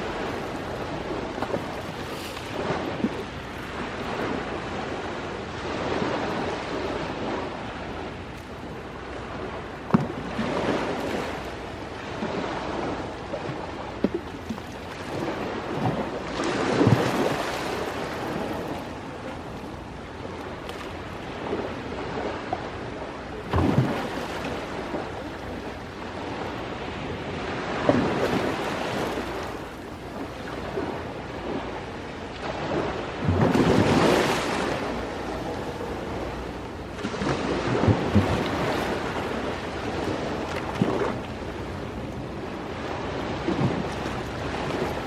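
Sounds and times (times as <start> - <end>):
sea waves washing ashore: 0.0 - 45.0.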